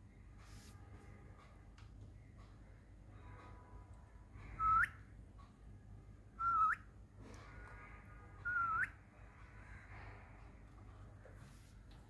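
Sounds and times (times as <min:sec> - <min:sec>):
parakeet whistling: 0:04.6 - 0:05.0, 0:08.5 - 0:09.0.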